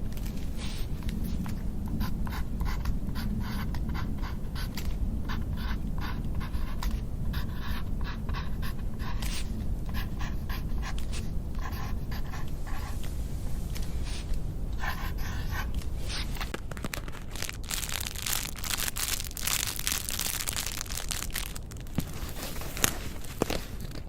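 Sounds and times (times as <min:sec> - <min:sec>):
scratchy strokes: 0:00.0 - 0:16.6
steady low hum: 0:00.0 - 0:24.0.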